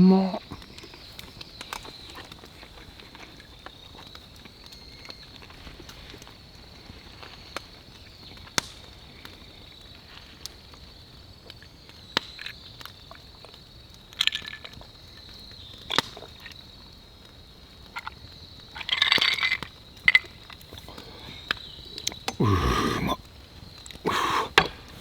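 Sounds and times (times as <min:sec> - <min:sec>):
campfire burning: 0:00.4 - 0:25.0
wood popping: 0:19.2 - 0:25.0.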